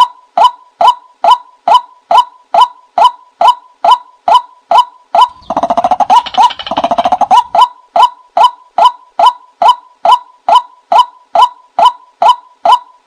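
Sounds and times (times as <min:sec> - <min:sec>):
rapid chattering bird calls: 0:05.2 - 0:07.7.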